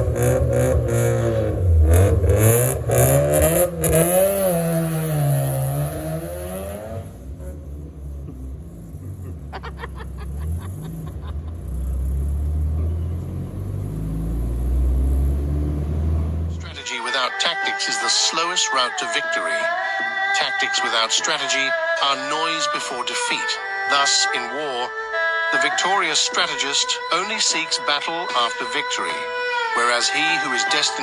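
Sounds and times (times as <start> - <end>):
car engine revving: 0.0 - 16.8
engine crackles: 0.0 - 16.8.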